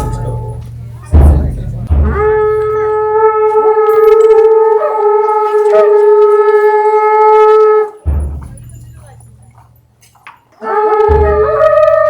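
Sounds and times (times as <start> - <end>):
horn long steady note: 0.0 - 1.1, 1.9 - 4.5.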